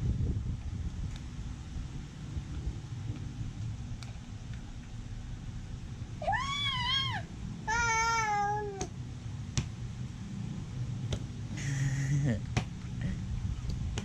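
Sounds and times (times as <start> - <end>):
low background hum: 0.0 - 14.0
baby squealing cries: 6.2 - 8.8.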